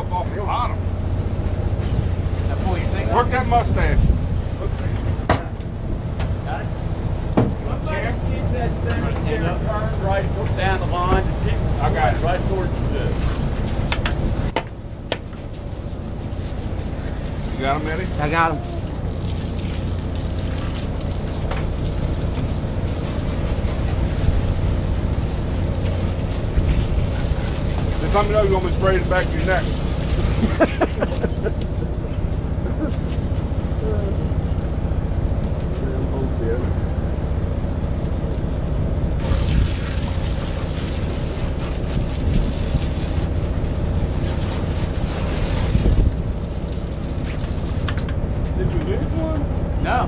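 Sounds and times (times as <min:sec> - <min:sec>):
boat engine running: 0:00.0 - 0:50.0
wind buffeting the microphone: 0:03.5 - 0:05.2, 0:41.8 - 0:43.0, 0:45.6 - 0:46.3
sea wash: 0:15.6 - 0:32.7, 0:38.5 - 0:47.9.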